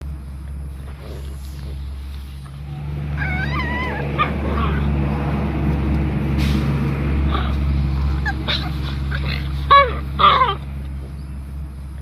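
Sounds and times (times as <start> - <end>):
steady low rumble: 0.0 - 12.0
dog whining: 2.6 - 5.0, 7.3 - 10.6.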